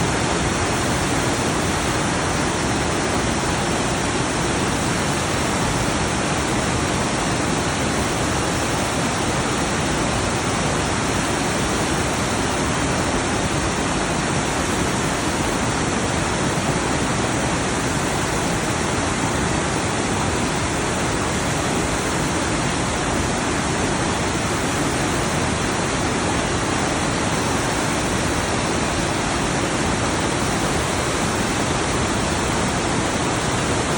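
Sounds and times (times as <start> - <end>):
stream rushing over rocks: 0.0 - 33.9.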